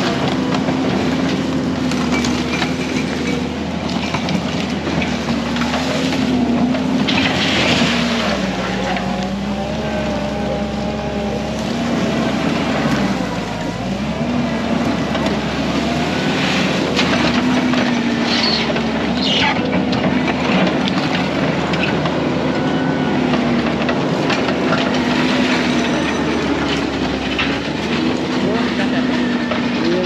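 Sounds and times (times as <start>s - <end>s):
diesel engine running under load: 0.0s - 30.0s.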